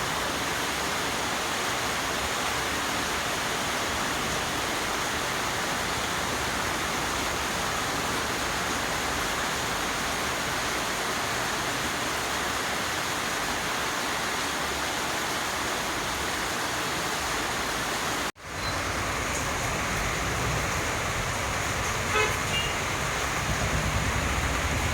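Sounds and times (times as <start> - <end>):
heavy rain falling: 0.0 - 24.9.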